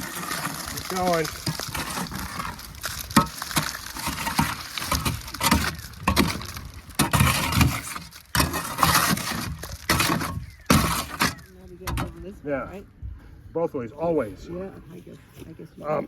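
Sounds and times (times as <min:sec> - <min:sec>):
wet concrete slopping: 0:00.0 - 0:12.0
scraping and splatting: 0:00.0 - 0:12.2.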